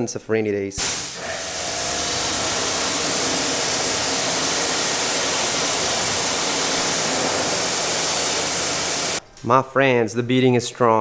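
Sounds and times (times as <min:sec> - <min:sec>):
pressure washer spraying water: 0:00.8 - 0:09.2.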